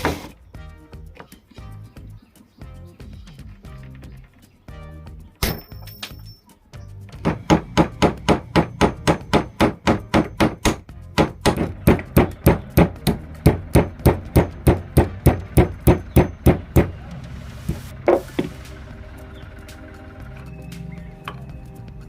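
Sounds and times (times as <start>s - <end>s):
hammer striking wood: 7.1s - 17.0s, 18.0s - 18.6s.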